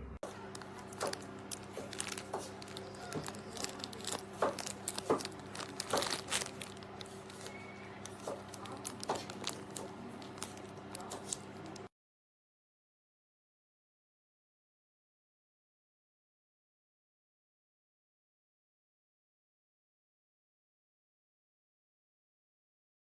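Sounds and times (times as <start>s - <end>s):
rustling and crinkling: 0.2s - 11.9s.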